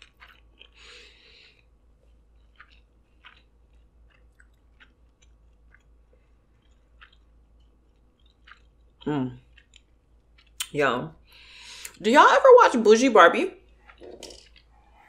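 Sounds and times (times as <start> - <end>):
faint chewing: 0.0 - 12.0, 13.6 - 15.0.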